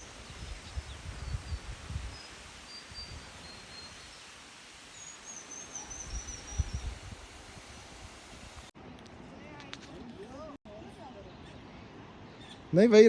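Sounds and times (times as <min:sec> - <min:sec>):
outdoor hiss: 0:00.0 - 0:08.8.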